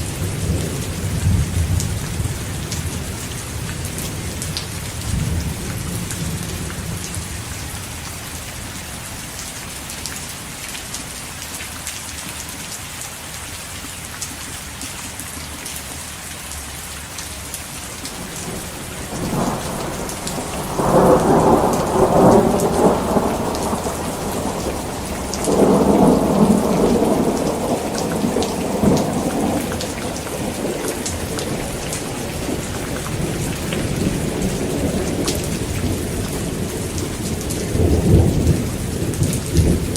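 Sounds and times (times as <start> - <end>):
rolling thunder: 0.0 - 7.3, 18.1 - 39.9
heavy rain falling: 0.0 - 39.9.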